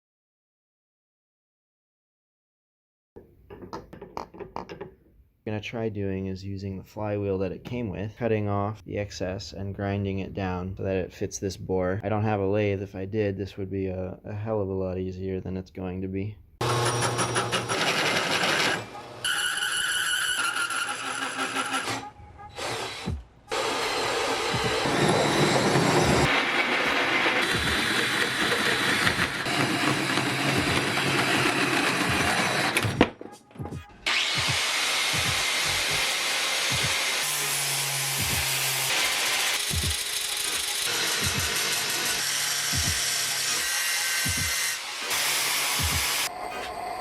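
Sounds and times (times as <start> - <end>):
power grinder grinding steel: 16.6 - 32.8, 34.1 - 46.3.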